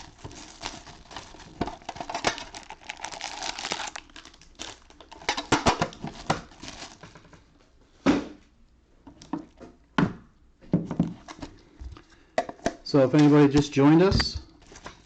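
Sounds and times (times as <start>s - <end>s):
foil packs crinkling: 0.0s - 7.2s.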